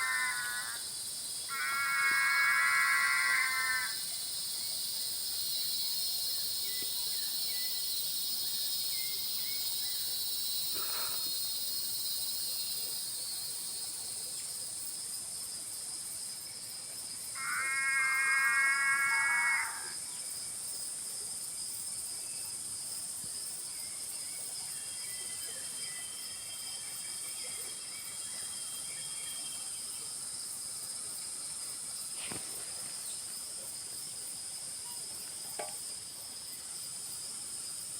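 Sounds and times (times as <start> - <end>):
frogs and insects trilling: 0.0 - 15.3, 16.3 - 20.9, 21.5 - 37.9
pulsed frog call: 1.5 - 4.0, 17.4 - 19.9.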